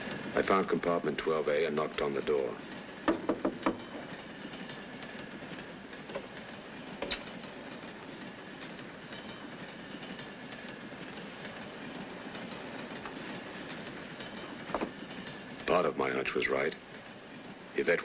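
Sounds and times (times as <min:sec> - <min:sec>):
train rumble and clatter: 0:00.0 - 0:18.0
knocks on a door: 0:03.0 - 0:03.8.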